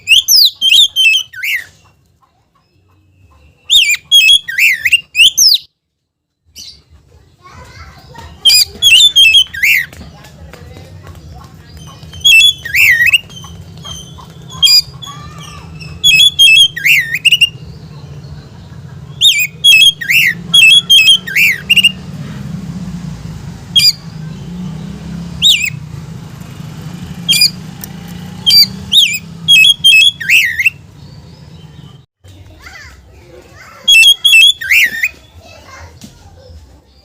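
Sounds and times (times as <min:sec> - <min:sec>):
magpie-robin whistled calls: 0:00.0 - 0:01.9, 0:03.1 - 0:05.7, 0:08.4 - 0:10.0, 0:12.0 - 0:17.9, 0:19.1 - 0:22.0, 0:23.7 - 0:24.6, 0:25.4 - 0:25.8, 0:27.3 - 0:27.7, 0:28.4 - 0:32.0, 0:33.7 - 0:35.3.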